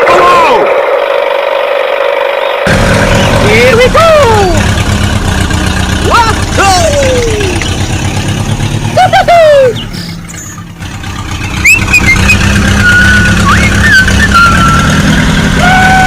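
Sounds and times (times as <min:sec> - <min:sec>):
tractor engine drone: 0:00.0 - 0:16.0
whistle-like sliding tones: 0:11.4 - 0:15.0.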